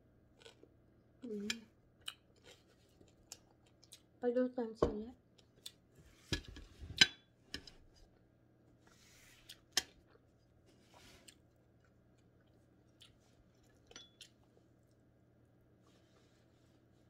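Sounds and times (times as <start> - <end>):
person chewing crispy food: 0.3 - 1.4, 2.0 - 4.1, 9.4 - 17.0.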